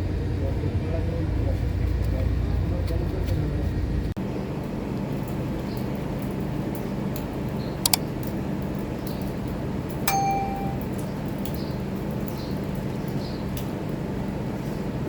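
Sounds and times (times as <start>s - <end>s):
metallic clink ringing: 10.1s - 11.0s.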